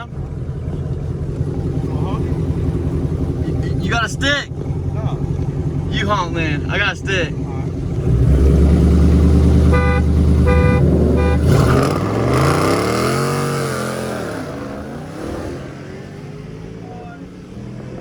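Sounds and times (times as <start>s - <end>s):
low engine rumble: 0.0s - 12.5s, 13.4s - 18.0s
car engine revving: 0.0s - 18.0s
car horn honks: 9.5s - 11.9s.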